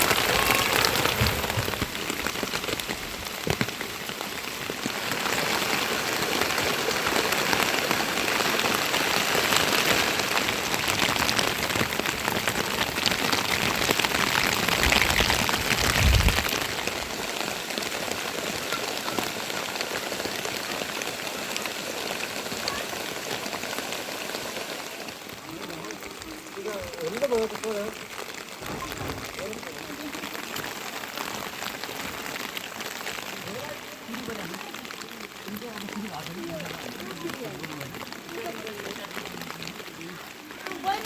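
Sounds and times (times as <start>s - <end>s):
rain falling steadily: 0.0s - 41.0s.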